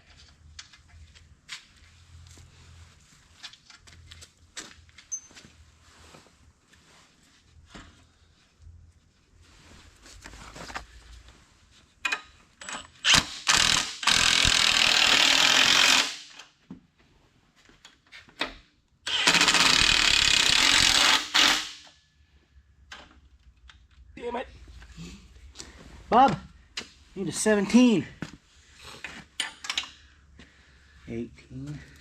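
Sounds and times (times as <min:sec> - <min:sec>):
impact wrench running: 0:13.0 - 0:16.4, 0:19.1 - 0:21.9.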